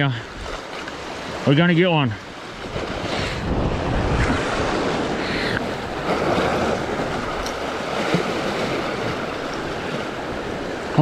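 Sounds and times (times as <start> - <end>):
ocean waves against rocks: 0.0 - 11.0
wind on microphone: 2.6 - 10.9.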